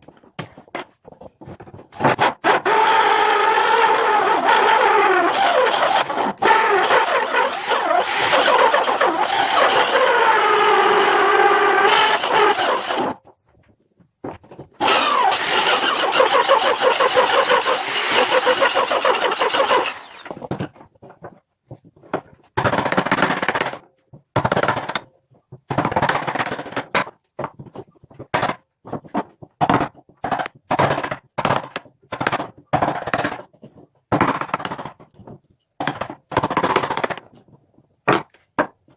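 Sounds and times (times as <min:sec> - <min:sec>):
power tool cutting wood: 0:02.1 - 0:13.2, 0:14.8 - 0:20.5.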